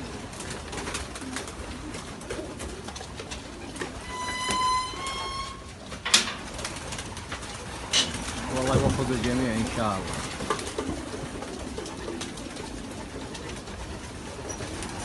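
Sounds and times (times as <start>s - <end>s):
pigeons cooing: 0.0s - 15.0s
wing flaps and clicks: 0.0s - 15.0s
two-part whistling tone: 4.0s - 5.7s.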